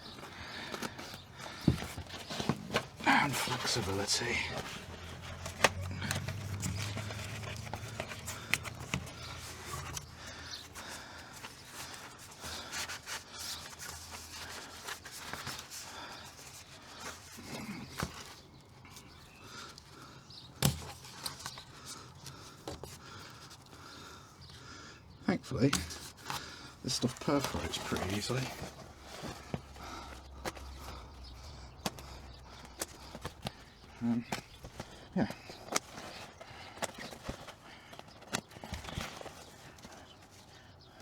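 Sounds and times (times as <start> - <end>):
insulation rubbing and scraping: 2.1 - 10.7, 26.8 - 30.1.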